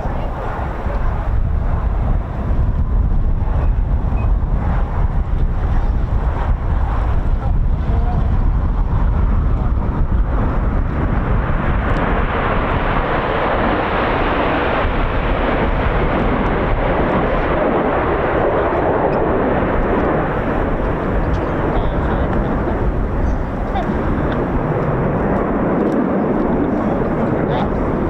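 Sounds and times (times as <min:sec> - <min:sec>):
wind on microphone: 0:00.0 - 0:28.0
jets flying past: 0:09.6 - 0:28.0.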